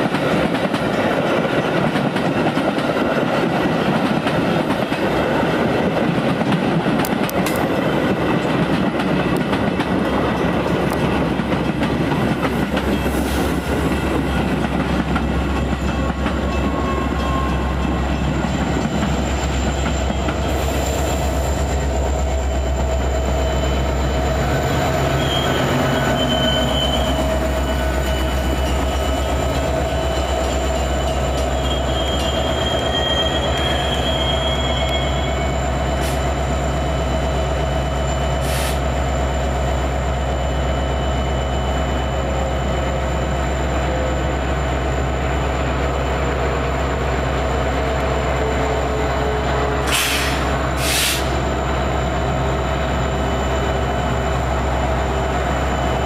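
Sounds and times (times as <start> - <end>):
diesel locomotive rumbling: 0.0 - 56.0
thin high squeal: 22.6 - 29.3
short hisses: 49.9 - 51.4.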